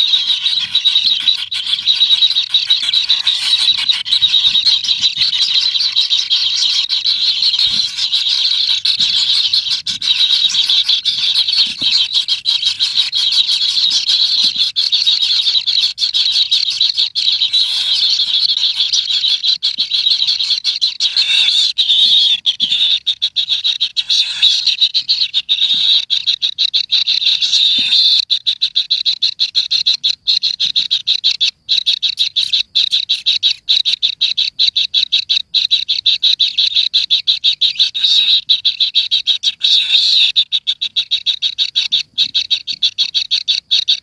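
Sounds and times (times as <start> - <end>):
animal chorus chirring and ticking: 0.0 - 44.0.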